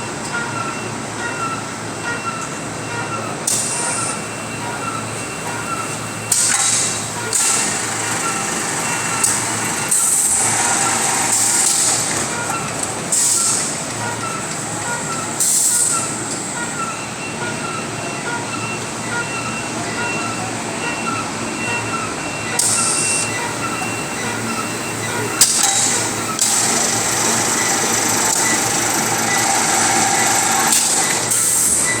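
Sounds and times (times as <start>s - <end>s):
steady mechanical din: 3.5s - 16.7s, 22.6s - 32.0s
bagging machine hiss: 3.5s - 16.9s, 22.6s - 32.0s.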